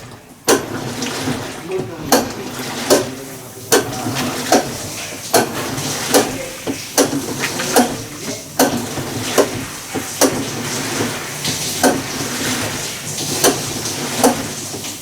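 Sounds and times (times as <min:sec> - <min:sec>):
washing machine churning hiss: 0:00.0 - 0:15.0
washing machine knocking: 0:00.0 - 0:15.0.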